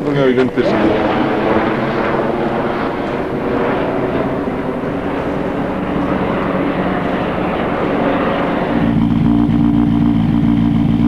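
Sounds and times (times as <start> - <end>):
car engine idling: 8.7 - 11.0.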